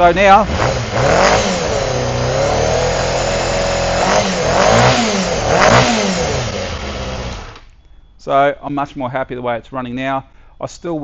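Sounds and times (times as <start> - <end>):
motorcycle engine revving: 0.0 - 7.7.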